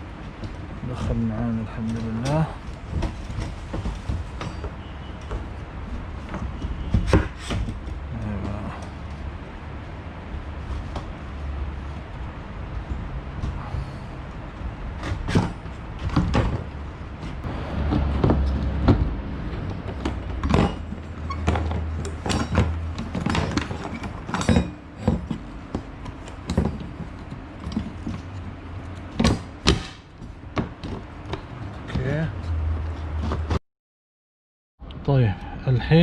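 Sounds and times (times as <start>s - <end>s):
tools and parts clattering: 1.8s - 9.2s, 15.0s - 32.2s.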